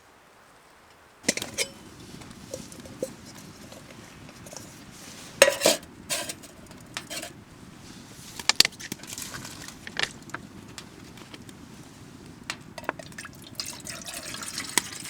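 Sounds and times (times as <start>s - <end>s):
pots and dishes clattering: 1.3s - 4.8s, 5.4s - 7.3s.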